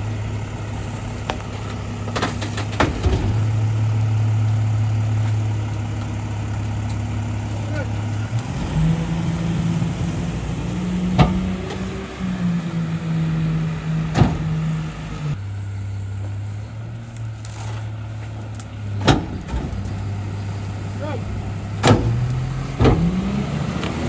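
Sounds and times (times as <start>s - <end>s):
garbage truck engine revving: 0.0s - 24.0s
sharp cracks of compacting trees: 16.8s - 24.0s.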